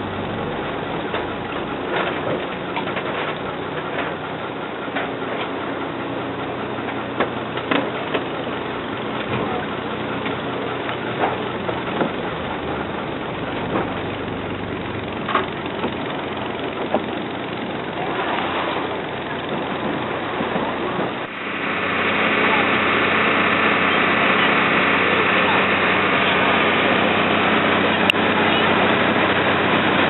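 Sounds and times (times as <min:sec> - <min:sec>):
boat engine droning: 0:00.0 - 0:30.0
sharp clicks and knocks: 0:06.8 - 0:08.3.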